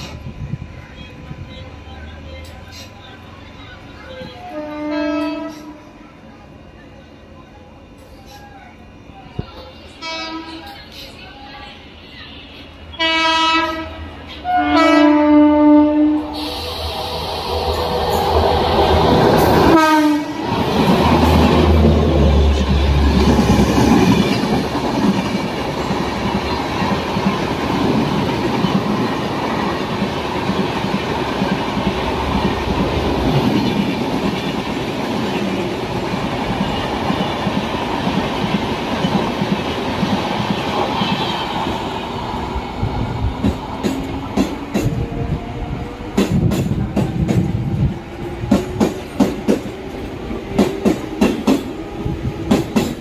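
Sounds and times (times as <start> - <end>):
train wheels rumbling and clattering: 0.0 - 3.1, 16.3 - 53.0
train horn: 4.2 - 6.0, 10.0 - 10.6, 12.9 - 16.5, 19.4 - 20.5.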